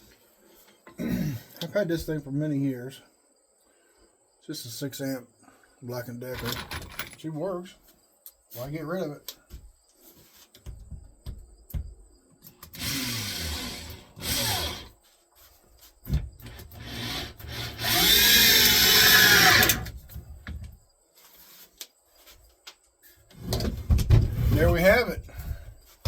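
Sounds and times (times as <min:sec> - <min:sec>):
electric drill driving screws: 0:12.7 - 0:14.9, 0:16.5 - 0:19.9.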